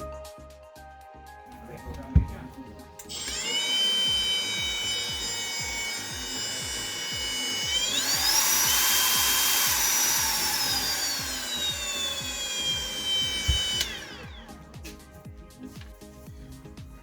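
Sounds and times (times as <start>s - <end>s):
angle grinder whine: 1.8s - 15.0s
knock: 2.1s - 2.4s.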